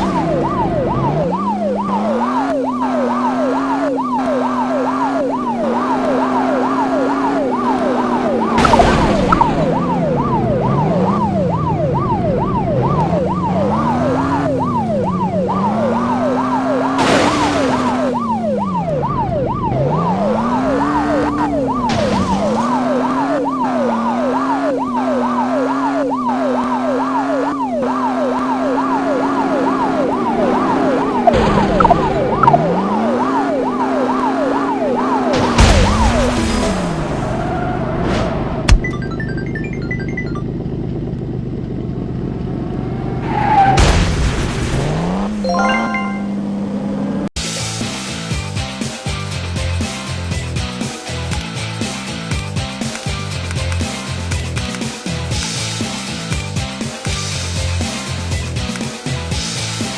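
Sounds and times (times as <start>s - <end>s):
police siren yelp: 0.0s - 37.9s, 45.4s - 46.4s.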